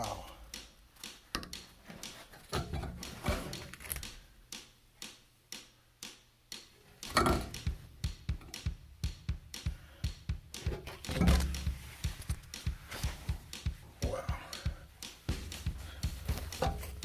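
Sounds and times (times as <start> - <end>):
ductwork clicks and knocks: 0.5 - 4.2, 7.0 - 9.6, 10.2 - 17.0.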